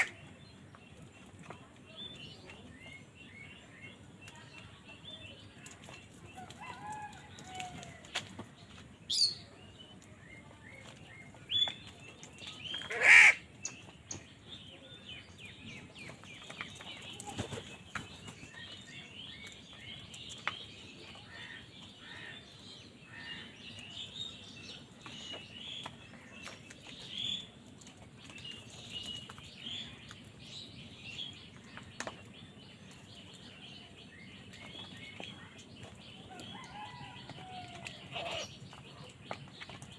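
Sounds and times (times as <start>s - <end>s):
crow cawing: 12.9s - 13.4s.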